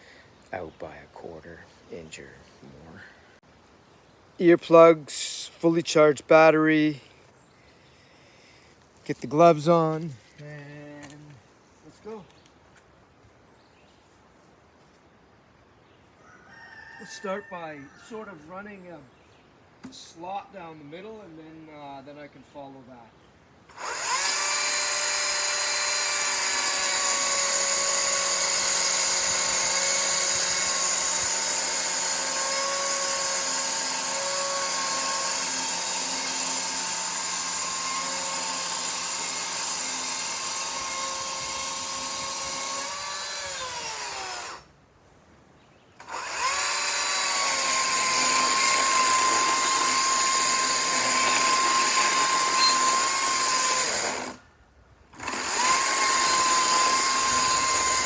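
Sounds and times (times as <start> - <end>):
chainsaw ripping wooden board: 23.7 - 44.6, 46.0 - 54.4, 55.2 - 58.0.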